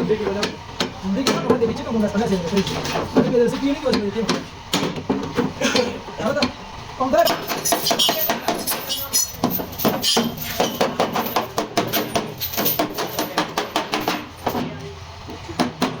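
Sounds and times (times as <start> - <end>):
metallic taps and clinks: 7.3 - 14.6.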